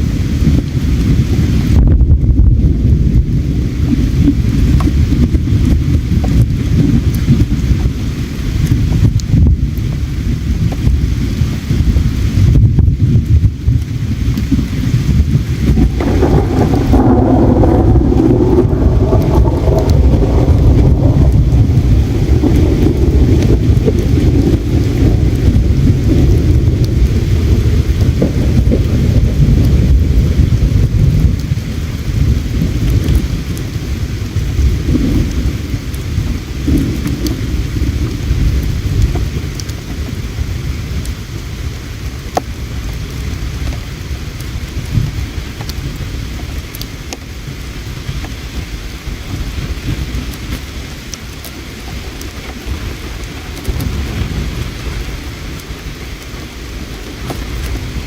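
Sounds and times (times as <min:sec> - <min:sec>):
faint campfire crackles: 0:00.0 - 0:58.0
river water rumbling: 0:13.4 - 0:58.0.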